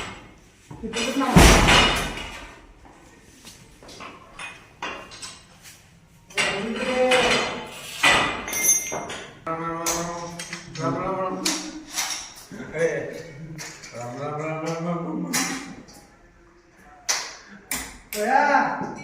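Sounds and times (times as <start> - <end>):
metal parts clanking: 6.3 - 9.4, 11.8 - 12.5.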